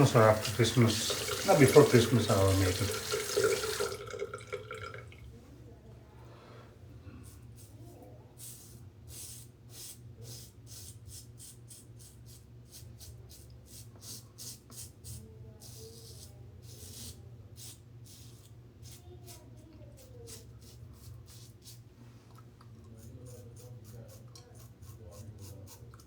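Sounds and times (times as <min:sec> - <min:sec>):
razor scraping stubble: 0:22.8 - 0:26.0.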